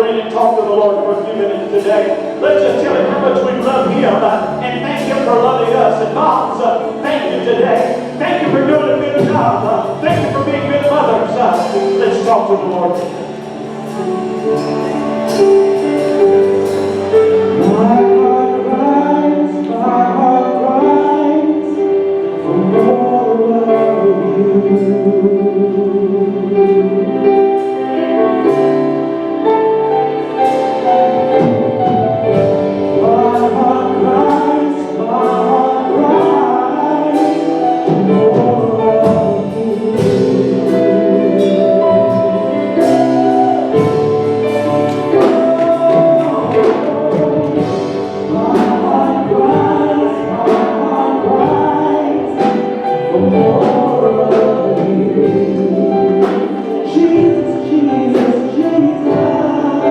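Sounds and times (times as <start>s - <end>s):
band accompaniment: 0.0s - 59.9s
choir singing gospel song: 30.2s - 59.9s.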